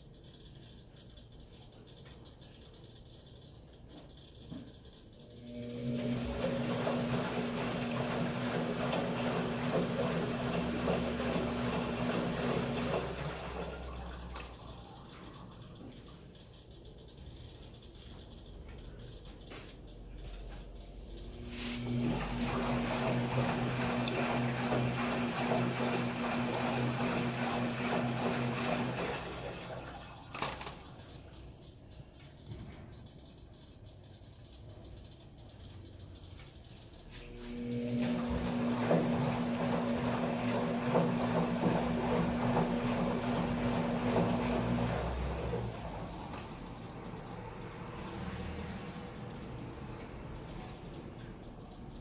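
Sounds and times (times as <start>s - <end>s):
washing machine motor hum: 0.0s - 52.0s
water churning in drum: 6.0s - 14.2s, 21.9s - 30.2s, 38.0s - 45.6s.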